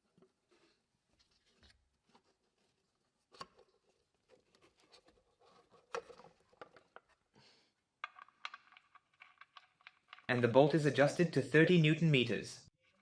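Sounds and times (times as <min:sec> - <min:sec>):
hand tools clicking and knocking: 0:08.0 - 0:10.8.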